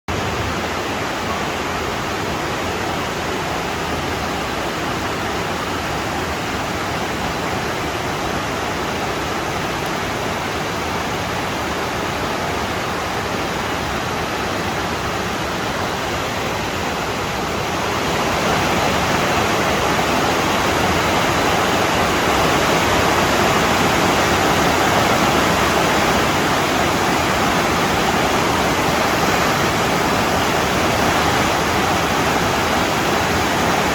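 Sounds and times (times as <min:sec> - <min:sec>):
water rushing over small falls: 0:00.1 - 0:33.9.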